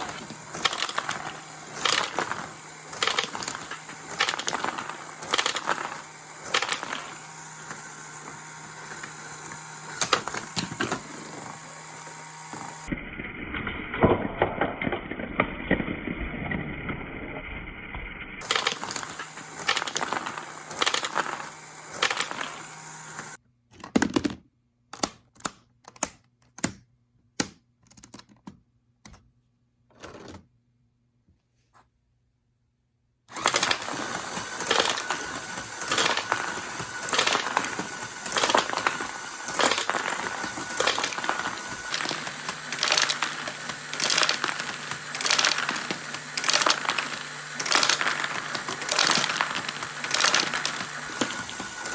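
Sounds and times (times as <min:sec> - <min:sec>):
toy gun clattering plastic clicks: 0:00.0 - 0:07.1, 0:33.3 - 0:51.9.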